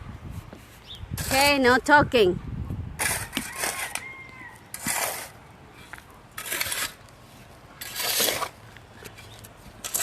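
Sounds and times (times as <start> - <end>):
shovel scraping into soil: 3.0 - 10.0.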